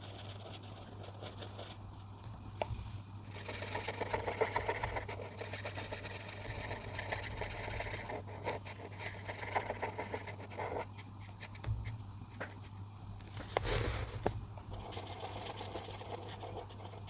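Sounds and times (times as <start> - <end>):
coloring tool scratching paper: 0.0 - 1.8, 3.3 - 11.6, 14.7 - 17.0.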